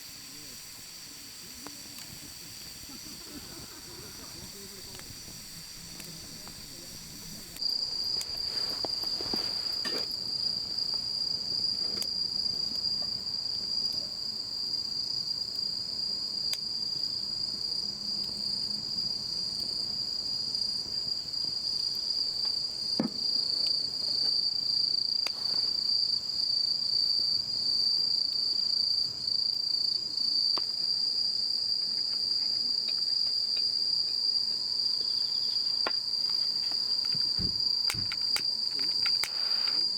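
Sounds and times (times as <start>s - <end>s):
crickets chorus: 0.0s - 39.9s
faint clicks: 36.3s - 39.8s.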